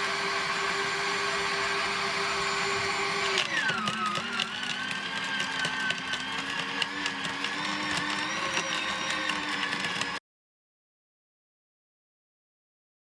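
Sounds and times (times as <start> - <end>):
wood chipper motor: 0.0 - 10.2.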